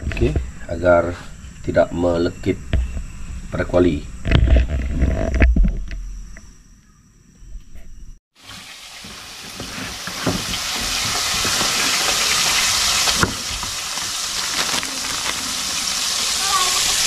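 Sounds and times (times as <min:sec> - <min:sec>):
fish deep-frying in hot oil: 0:08.3 - 0:17.0.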